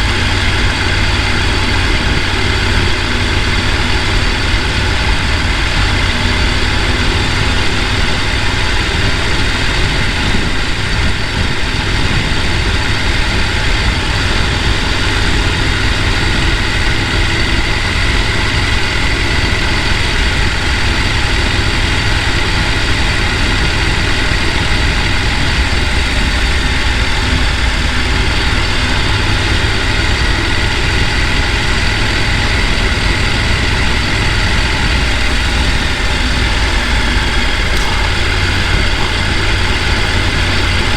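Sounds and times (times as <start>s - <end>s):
stream rushing over rocks: 35.0s - 40.9s.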